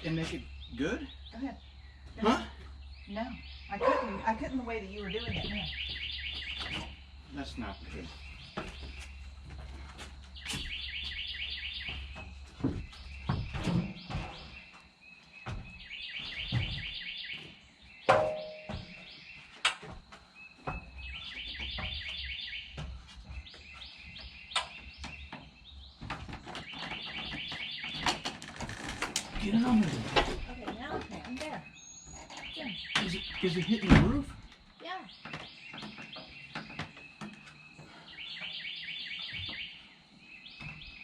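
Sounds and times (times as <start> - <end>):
sharp knocks: 18.1 - 19.1.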